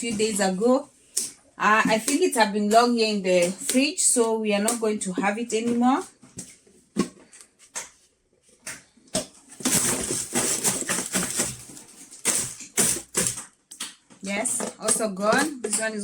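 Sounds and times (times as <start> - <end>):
packaging rustling and scraping: 5.3 - 13.6.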